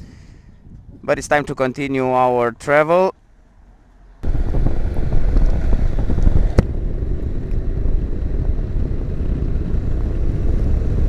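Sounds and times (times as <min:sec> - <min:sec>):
wind noise: 0:00.0 - 0:02.2, 0:04.2 - 0:11.0
motorcycle engine running: 0:04.2 - 0:11.0.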